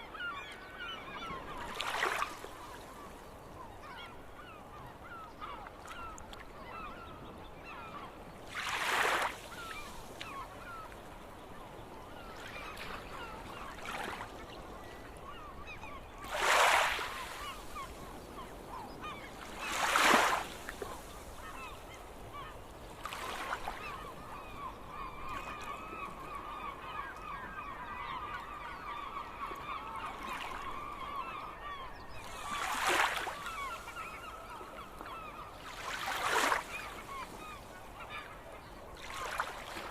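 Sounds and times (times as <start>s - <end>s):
gulls calling: 11.6s - 39.9s.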